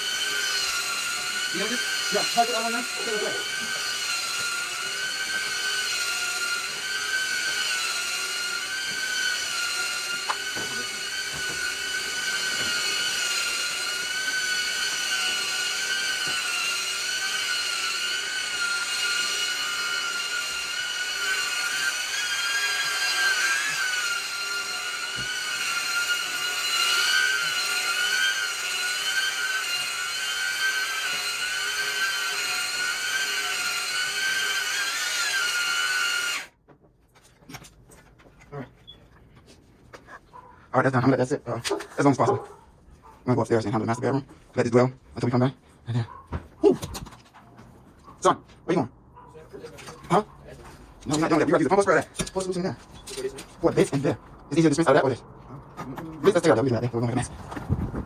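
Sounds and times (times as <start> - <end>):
electric motor whining: 0.0 - 36.5.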